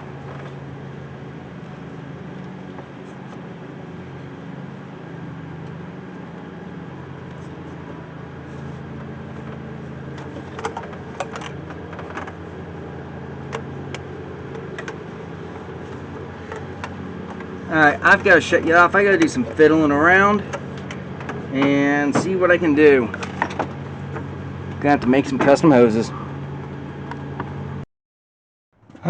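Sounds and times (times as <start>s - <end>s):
low mechanical hum: 0.0s - 27.8s, 28.8s - 29.0s.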